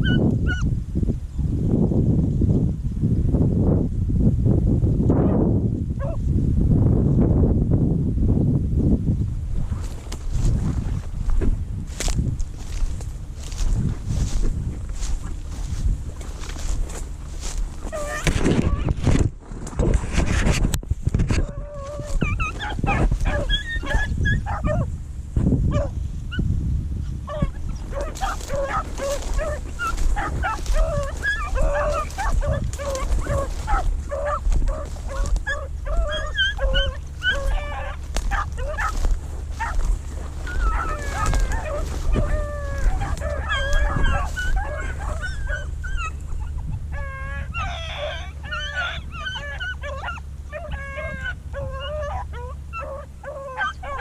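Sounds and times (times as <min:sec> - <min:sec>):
dogs baying and yelping: 0:00.0 - 0:00.7, 0:06.0 - 0:06.2, 0:11.2 - 0:19.1, 0:21.2 - 0:25.0, 0:25.7 - 0:54.0
low rumble: 0:00.0 - 0:54.0.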